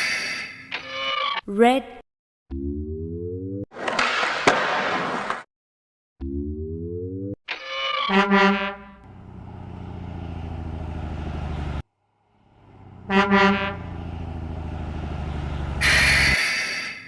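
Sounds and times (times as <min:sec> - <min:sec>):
truck horn honking: 0:08.1 - 0:11.8, 0:12.6 - 0:16.4
low engine rumble: 0:09.0 - 0:16.4.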